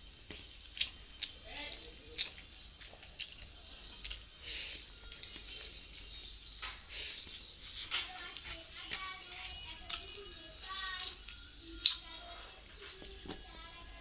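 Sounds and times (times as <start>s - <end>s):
wet chewing and lip smacks: 2.1s - 4.3s.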